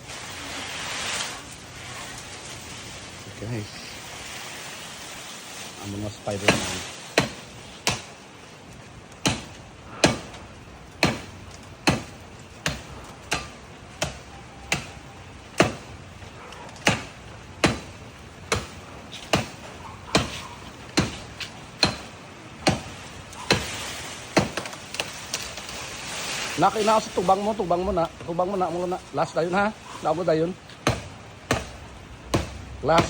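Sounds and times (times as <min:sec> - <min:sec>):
machete chopping branch: 0:06.2 - 0:08.2, 0:09.1 - 0:10.4, 0:11.0 - 0:16.0, 0:16.7 - 0:28.9, 0:30.6 - 0:33.0.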